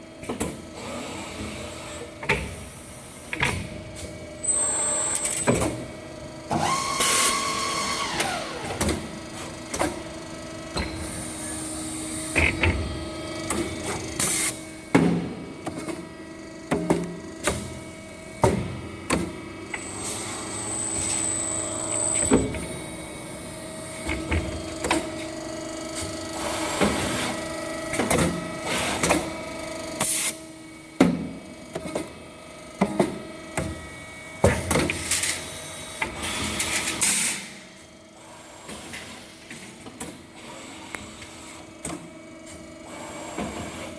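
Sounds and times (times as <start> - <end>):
machine motor hum: 3.5 - 29.9
falling machine whine: 19.7 - 23.6.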